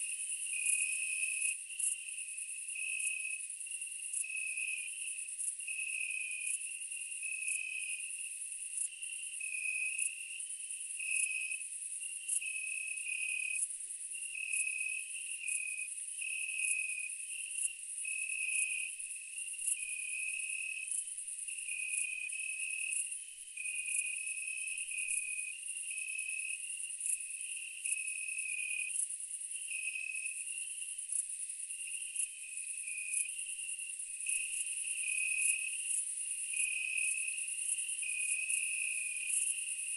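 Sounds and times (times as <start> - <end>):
low insect chirp: 0.0 - 39.9
high-pitched insect trill: 16.6 - 39.9.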